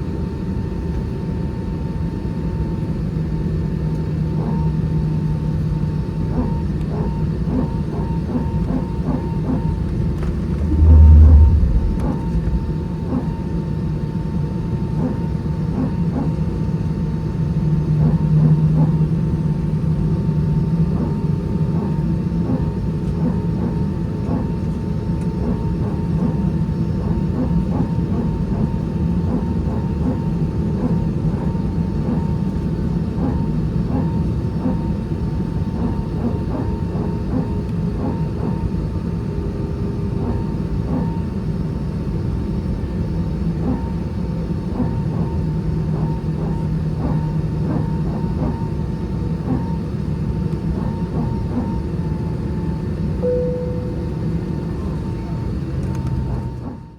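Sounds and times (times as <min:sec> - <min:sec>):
thin steady whine: 0:04.3 - 0:14.1, 0:42.9 - 0:56.9
low cabin rumble: 0:08.8 - 0:13.9, 0:53.2 - 0:56.8.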